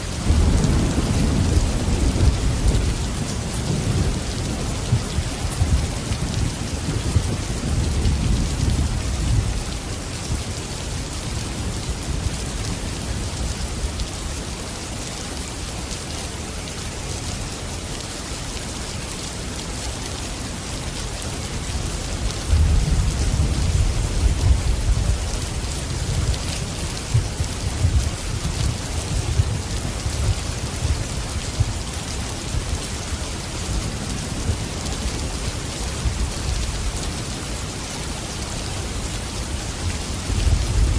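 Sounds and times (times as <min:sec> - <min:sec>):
heavy rain: 0:00.0 - 0:40.9
thunder rumbling: 0:00.1 - 0:09.6.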